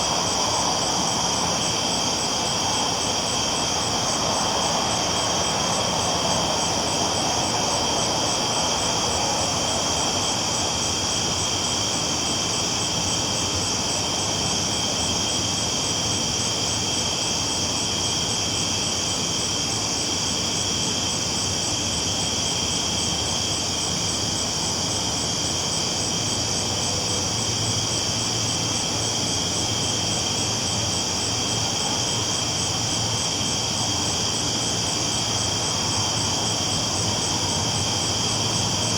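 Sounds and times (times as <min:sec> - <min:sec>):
night insects chorus: 0:00.0 - 0:38.9.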